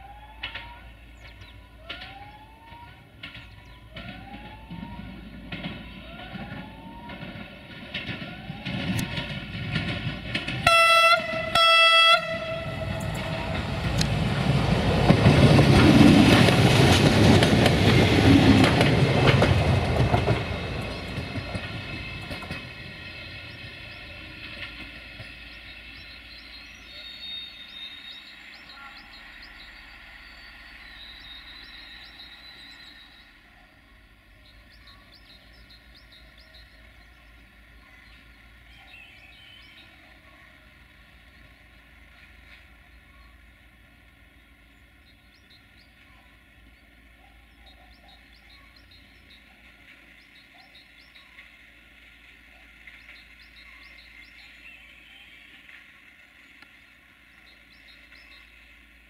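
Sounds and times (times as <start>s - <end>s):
diesel train engines: 0.0s - 59.0s
wheels rumbling over rails: 0.0s - 59.0s
train horn blasts: 10.6s - 14.1s.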